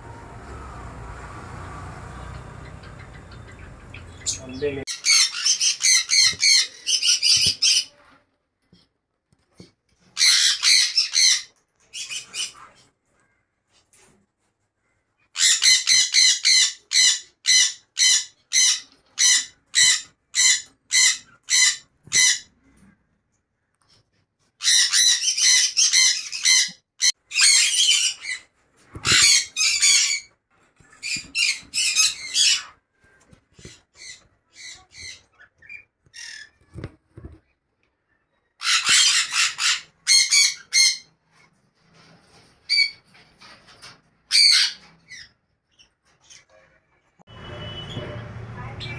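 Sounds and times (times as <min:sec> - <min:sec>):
parrots squawking: 0:01.2 - 0:08.0, 0:10.2 - 0:12.9, 0:15.3 - 0:22.7, 0:24.6 - 0:36.8, 0:38.6 - 0:41.2, 0:42.6 - 0:46.5.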